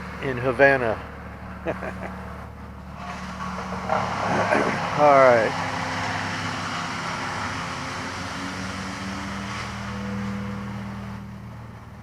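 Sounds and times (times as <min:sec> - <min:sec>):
wood chipper engine running: 0:03.6 - 0:10.5.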